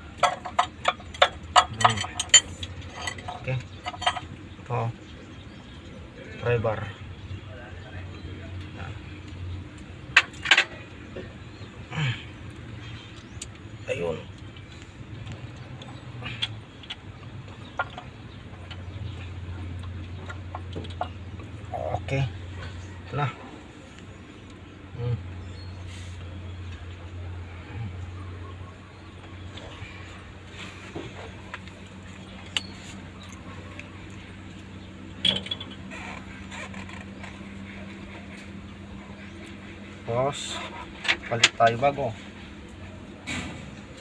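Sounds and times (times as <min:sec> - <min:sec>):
steady low hum: 0:00.0 - 0:44.0
metal tools clinking: 0:00.2 - 0:04.3, 0:35.2 - 0:35.9.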